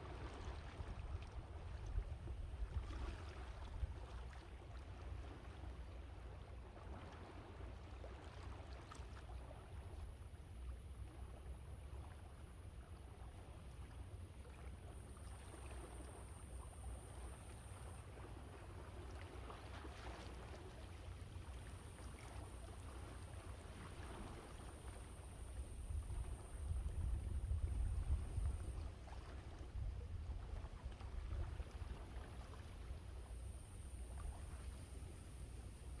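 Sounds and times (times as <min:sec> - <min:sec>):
wind buffeting microphone: 0:25.8 - 0:28.9.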